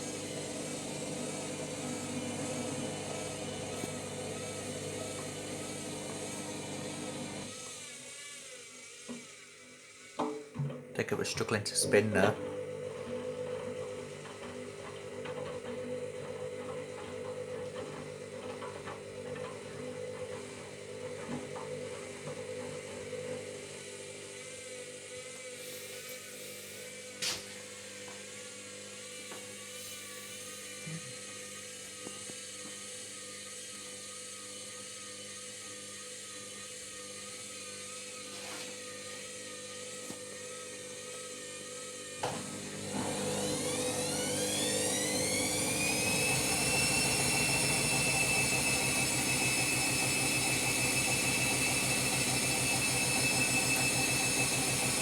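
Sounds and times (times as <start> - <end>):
washing machine motor humming: 0.0 - 7.7, 11.0 - 24.0, 42.0 - 55.0.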